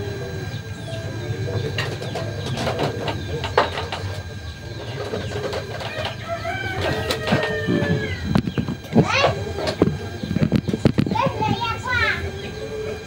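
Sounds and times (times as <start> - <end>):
birds calling: 0.0 - 13.0
dove cooing: 0.0 - 13.0
steady low hum: 0.0 - 13.0.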